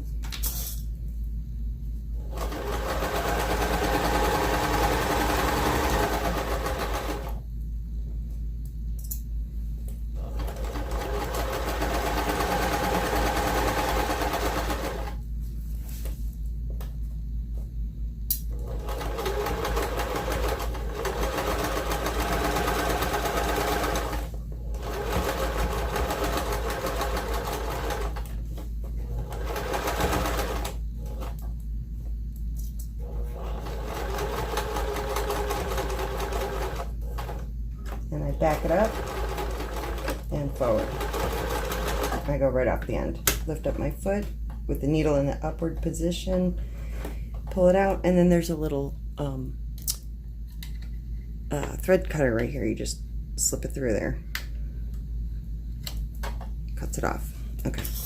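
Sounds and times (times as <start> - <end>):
electric sewing machine stitching: 2.2 - 7.4, 10.2 - 15.2, 18.5 - 28.3, 29.0 - 31.4, 33.0 - 37.4, 38.1 - 42.4.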